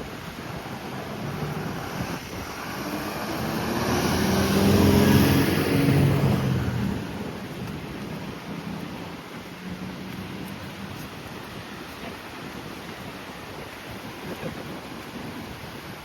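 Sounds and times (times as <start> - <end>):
car passing by: 0.0 - 11.1.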